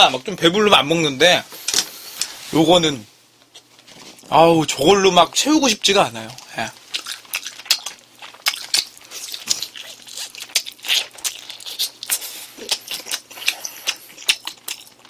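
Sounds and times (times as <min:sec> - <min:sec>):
crunchy food chewing: 0:06.3 - 0:15.0
wet mouth sounds: 0:06.4 - 0:15.0.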